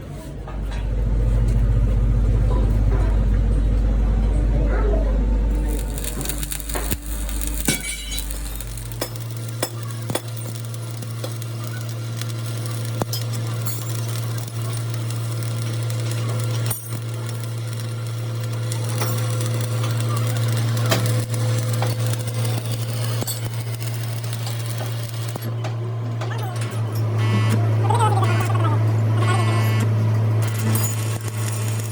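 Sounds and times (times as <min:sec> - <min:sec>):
workshop machine humming: 0:00.0 - 0:31.9
sizzling crackle: 0:05.5 - 0:25.5, 0:30.5 - 0:31.9.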